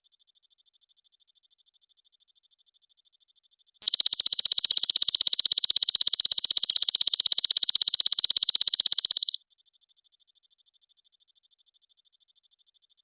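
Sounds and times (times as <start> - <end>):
high-pitched bird trill: 3.9 - 9.4.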